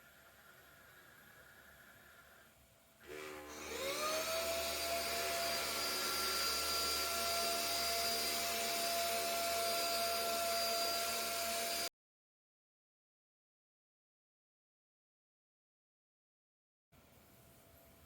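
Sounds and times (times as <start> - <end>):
vacuum cleaner motor whining: 3.0 - 11.9.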